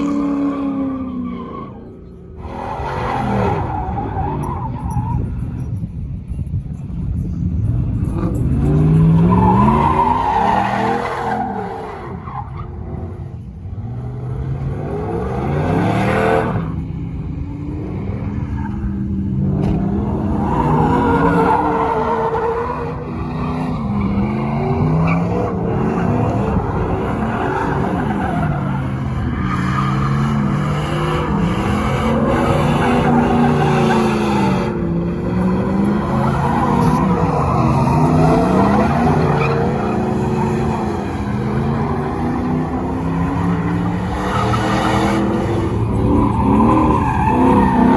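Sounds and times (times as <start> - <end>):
truck engines revving: 0.0 - 47.9.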